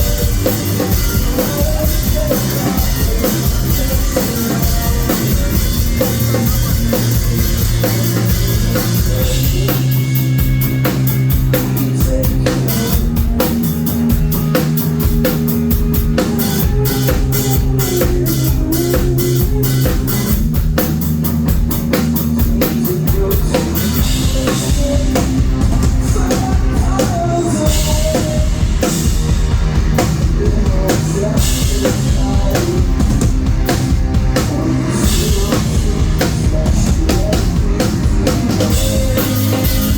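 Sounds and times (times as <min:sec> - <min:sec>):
drum kit: 0:00.0 - 0:39.9
live rock band playing: 0:00.0 - 0:39.9.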